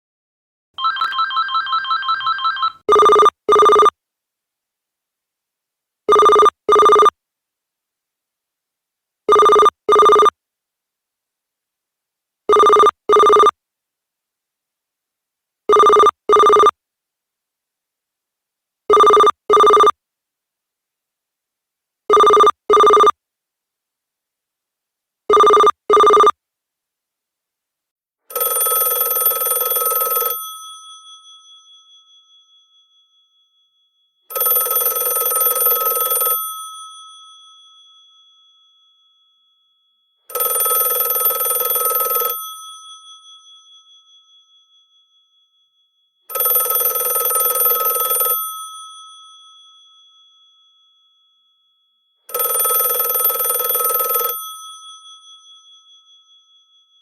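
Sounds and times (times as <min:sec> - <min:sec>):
telephone bell ringing: 0:00.8 - 0:04.0, 0:06.1 - 0:07.1, 0:09.3 - 0:10.4, 0:12.5 - 0:13.6, 0:15.7 - 0:16.8, 0:18.9 - 0:20.0, 0:22.1 - 0:23.2, 0:25.3 - 0:26.4, 0:28.3 - 0:57.0.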